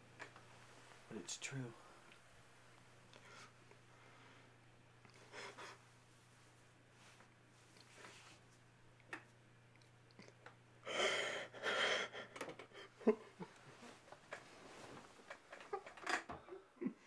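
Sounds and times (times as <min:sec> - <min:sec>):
man sobbing: 0:10.9 - 0:13.6.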